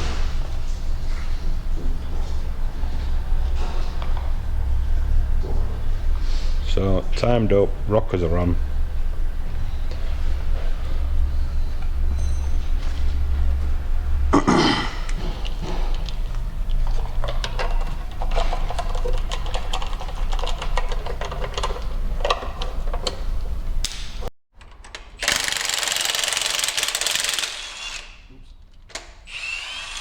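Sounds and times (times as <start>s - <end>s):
power tool running: 25.2s - 28.2s, 29.3s - 30.0s.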